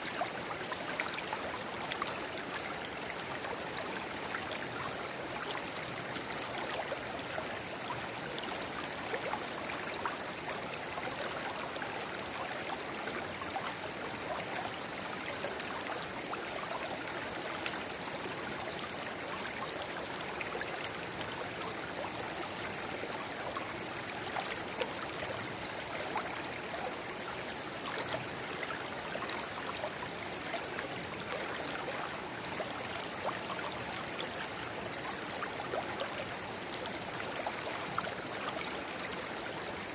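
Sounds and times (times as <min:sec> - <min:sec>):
river babbling: 0:00.0 - 0:39.9.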